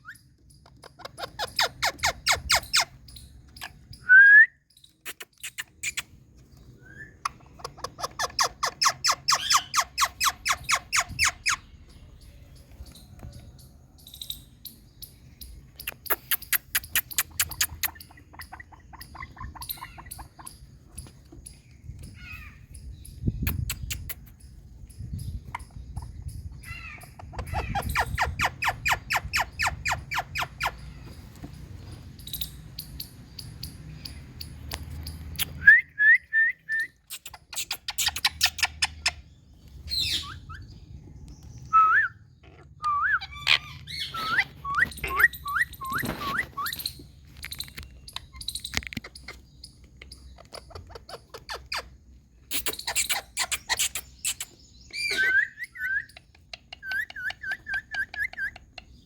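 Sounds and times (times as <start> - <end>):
parakeets harsh chattering: 0.8 - 3.8, 7.3 - 11.7, 15.9 - 20.8, 25.4 - 31.0, 37.1 - 39.3, 50.1 - 59.0
parakeets short hooked whistles: 52.5 - 56.1.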